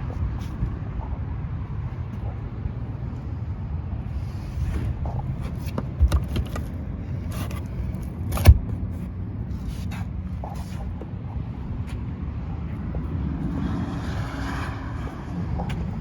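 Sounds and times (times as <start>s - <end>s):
low vehicle rumble: 0.0s - 16.0s
knocks and rattles: 5.0s - 6.8s.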